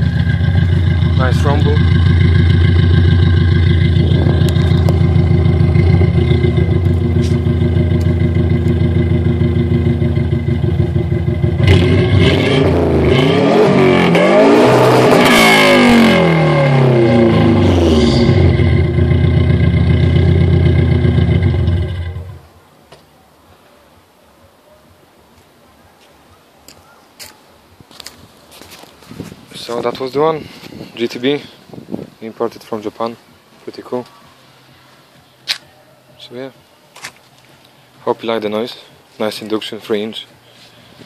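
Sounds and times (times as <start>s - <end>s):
car engine idling: 0.0s - 12.3s, 16.6s - 22.5s
engine revving: 0.0s - 22.5s.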